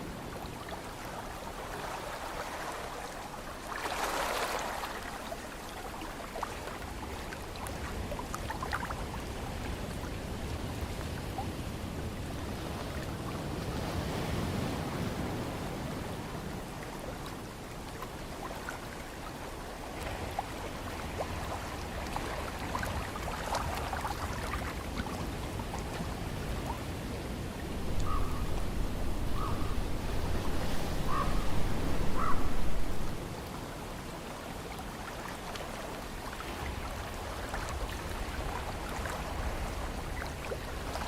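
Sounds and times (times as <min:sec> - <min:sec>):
ocean surf washing: 0:00.0 - 0:41.0.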